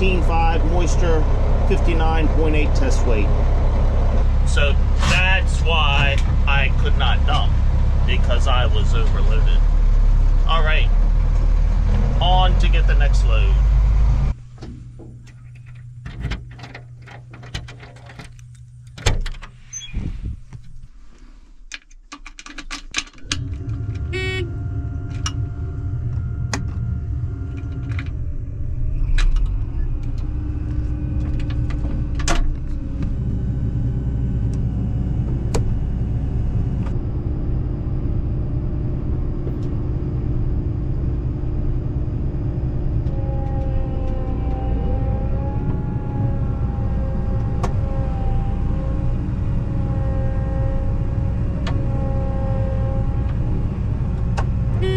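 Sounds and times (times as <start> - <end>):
truck engine rumbling: 0.0 - 54.9
sharp clicks and knocks: 21.7 - 24.1.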